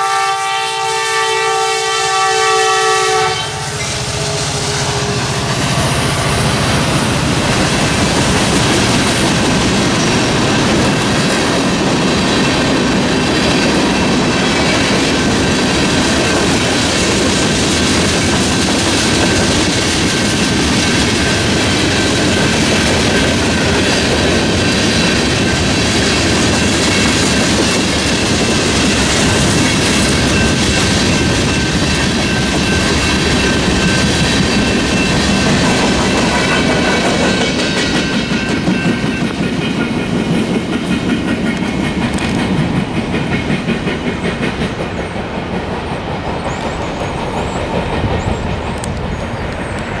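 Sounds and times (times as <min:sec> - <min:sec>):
freight train rolling: 0:00.0 - 0:50.0
crossing bell ringing: 0:03.2 - 0:06.6, 0:18.0 - 0:39.4
wheels clacking over rail joints: 0:03.7 - 0:50.0.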